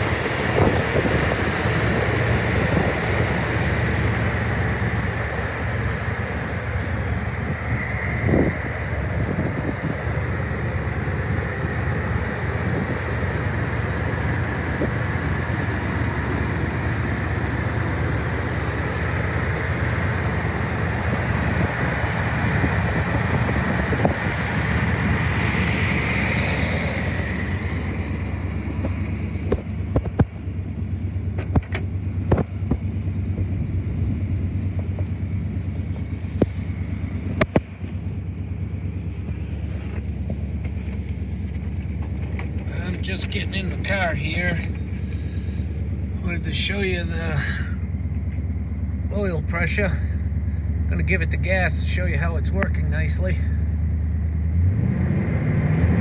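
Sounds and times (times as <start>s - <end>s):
car engine idling: 0.0s - 55.0s
wind noise on microphone: 0.4s - 1.5s, 7.6s - 10.0s.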